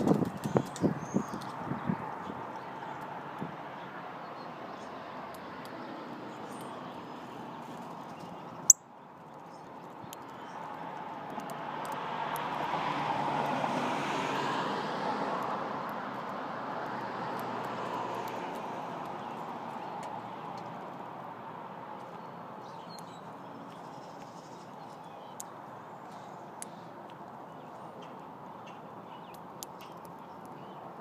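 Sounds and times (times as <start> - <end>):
vehicle passing by: 11.6 - 20.8.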